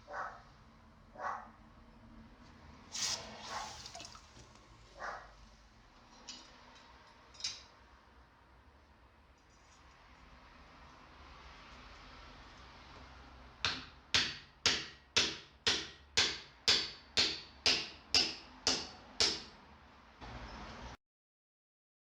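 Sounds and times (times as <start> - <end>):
hammer striking steel on anvil: 13.6 - 19.6.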